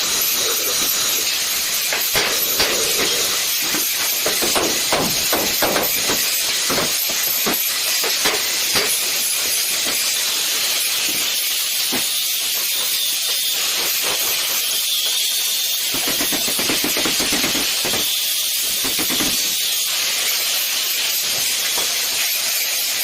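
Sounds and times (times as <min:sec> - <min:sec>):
arc welding crackling hiss: 0:00.0 - 0:23.0
sharp metal knocks: 0:01.9 - 0:09.2, 0:15.9 - 0:19.7.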